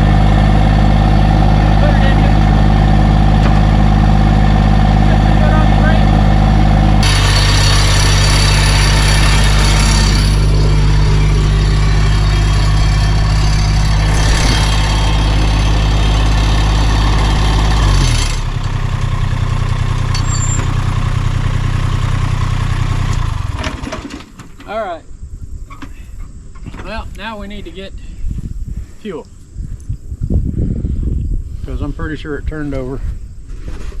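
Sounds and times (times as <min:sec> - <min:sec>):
vehicle engine running under load: 0:00.0 - 0:24.5.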